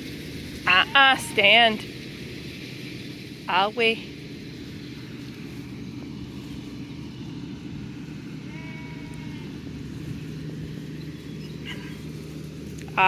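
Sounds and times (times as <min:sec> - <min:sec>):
steady low rumble: 0:00.0 - 0:13.0
sheep bleating: 0:08.4 - 0:09.6.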